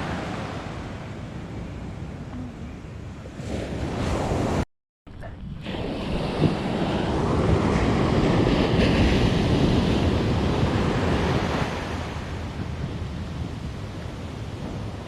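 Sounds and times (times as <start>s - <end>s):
ocean surf breaking: 0.0s - 4.6s, 5.4s - 15.0s
wind buffeting microphone: 5.2s - 15.0s.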